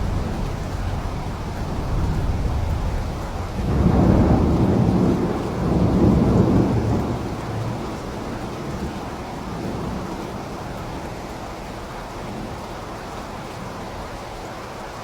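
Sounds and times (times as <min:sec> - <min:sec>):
low rolling thunder: 0:00.0 - 0:11.3
steady rain: 0:00.0 - 0:15.0.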